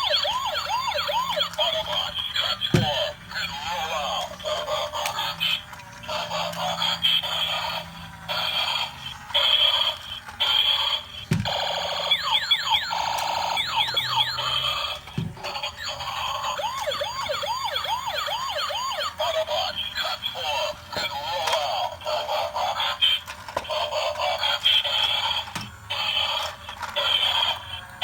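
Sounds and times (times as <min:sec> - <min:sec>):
toy electronic beeping tones: 0:00.0 - 0:03.0, 0:11.5 - 0:21.5
toy siren wails: 0:00.0 - 0:28.0.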